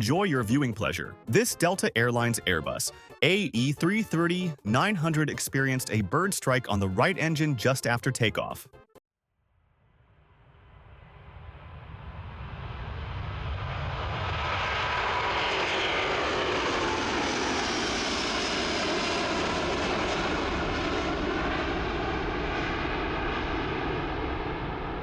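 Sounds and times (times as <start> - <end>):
jet engines roaring: 11.6 - 25.0.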